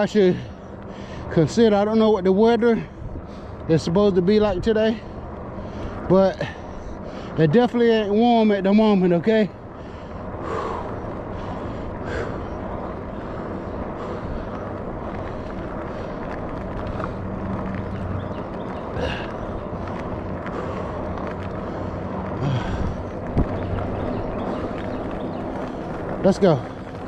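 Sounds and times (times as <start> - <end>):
tyre noise on road: 0.0 - 27.0
wind rush: 9.6 - 27.0.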